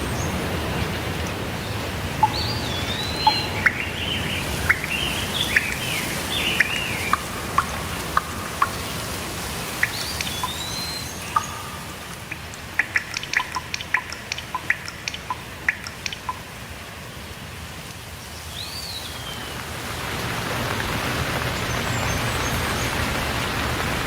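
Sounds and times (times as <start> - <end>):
steady rain: 0.0 - 24.0
water drops dripping: 2.1 - 16.7
birds chirping and whistling: 2.2 - 16.4.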